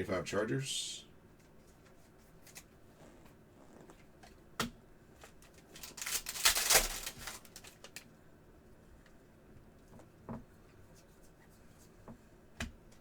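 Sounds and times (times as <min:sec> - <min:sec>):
cards rustling and flicking: 0:05.3 - 0:08.1.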